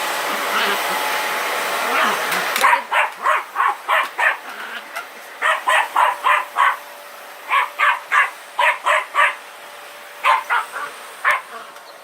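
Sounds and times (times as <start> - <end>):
vacuum cleaner hum: 0.0 - 12.0
dog barking: 2.0 - 4.4, 5.4 - 6.8, 7.5 - 9.4, 10.2 - 11.7.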